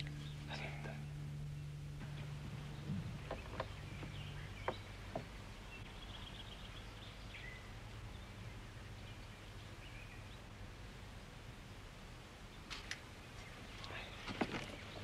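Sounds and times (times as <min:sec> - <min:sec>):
small birds chirping and trilling: 0:00.0 - 0:10.6, 0:11.6 - 0:15.0
faint low hum: 0:00.0 - 0:15.0
sharp knocks: 0:02.0 - 0:05.4.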